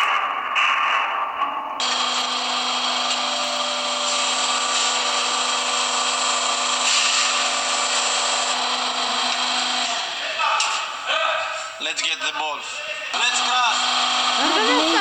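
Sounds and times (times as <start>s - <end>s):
electric pump motor humming: 1.8s - 10.1s, 13.2s - 15.0s.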